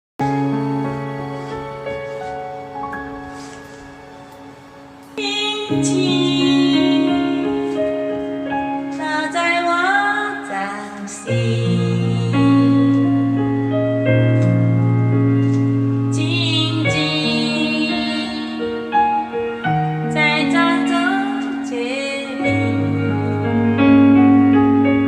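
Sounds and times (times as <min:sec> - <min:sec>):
piano: 0:00.2 - 0:25.0
sustained keyboard chords: 0:00.2 - 0:25.0
woman singing: 0:05.2 - 0:13.4, 0:16.1 - 0:19.3, 0:20.0 - 0:23.8.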